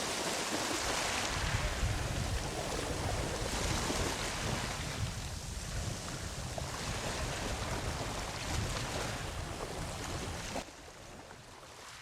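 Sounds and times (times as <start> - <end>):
surf washing onto beach: 0.0 - 10.8
wind rumble on microphone: 0.0 - 11.6.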